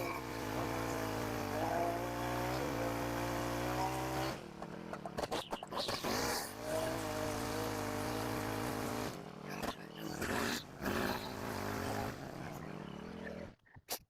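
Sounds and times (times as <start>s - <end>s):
small petrol engine running: 0.0s - 13.6s.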